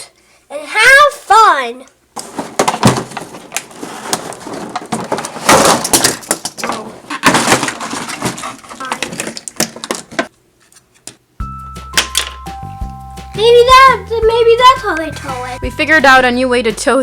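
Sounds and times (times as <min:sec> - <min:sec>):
plastic toys clattering: 0:02.2 - 0:10.3.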